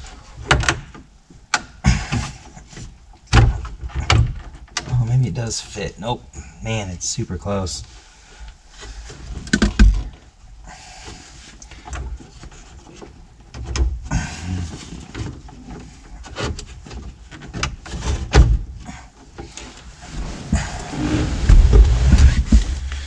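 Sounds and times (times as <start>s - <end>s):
knocks and clicks of handled parts: 9.3s - 10.3s.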